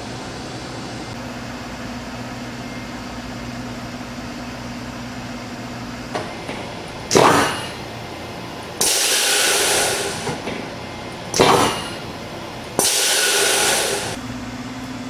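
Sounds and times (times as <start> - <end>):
steady low hum: 0.0 - 15.0
air brake hissing: 8.8 - 10.4, 12.8 - 14.2.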